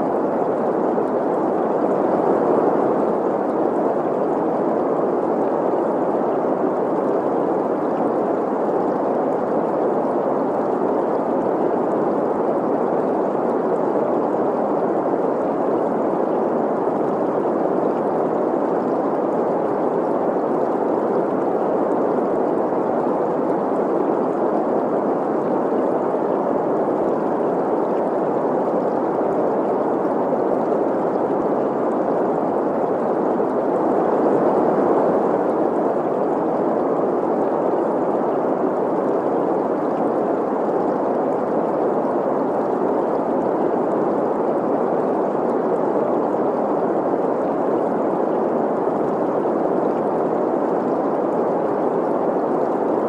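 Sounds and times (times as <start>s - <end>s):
gurgling stream: 0.0s - 53.0s
steady green noise hiss: 0.0s - 53.0s.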